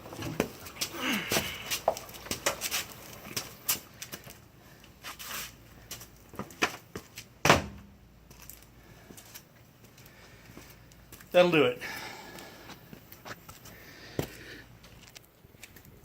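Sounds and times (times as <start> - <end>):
loud thump: 7.4 - 7.9.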